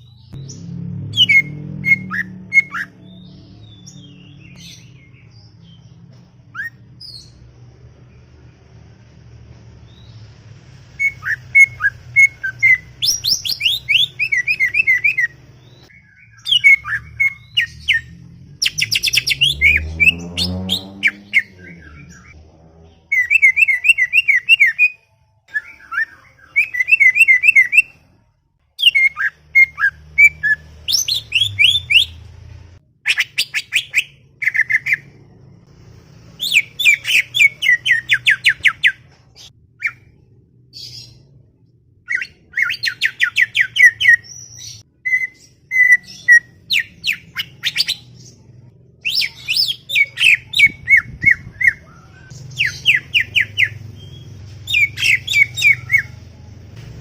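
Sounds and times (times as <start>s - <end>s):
low rising sound: 0.1s - 23.8s.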